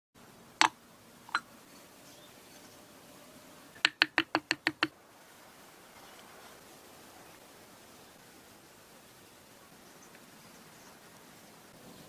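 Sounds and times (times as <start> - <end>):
faint hiss: 0.2 - 12.0
sharp clicks: 3.8 - 4.9.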